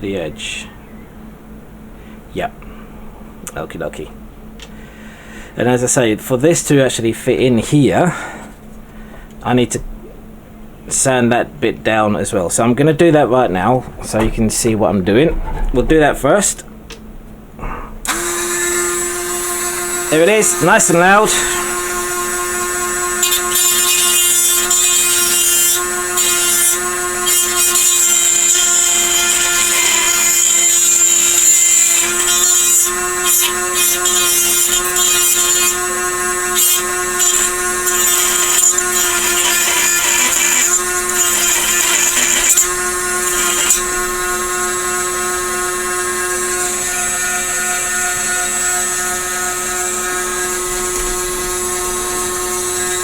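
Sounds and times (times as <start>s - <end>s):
rotary power tool whine: 18.0s - 53.0s
scratchy grinding on plastic: 19.7s - 46.8s.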